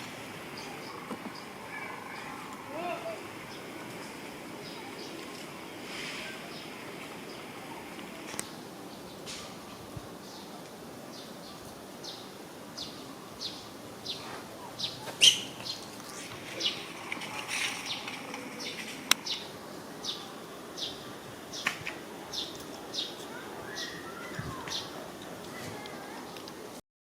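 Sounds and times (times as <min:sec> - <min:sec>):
bird chirping: 0:11.1 - 0:21.7.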